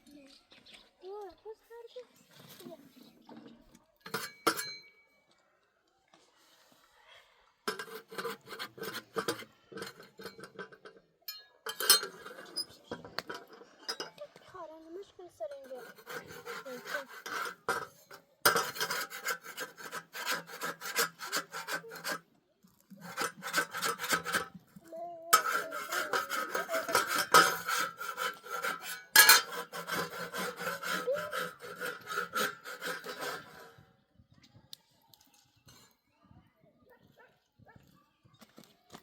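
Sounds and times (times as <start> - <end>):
rhythmic scraping strokes: 15.4 - 22.2, 22.9 - 33.8.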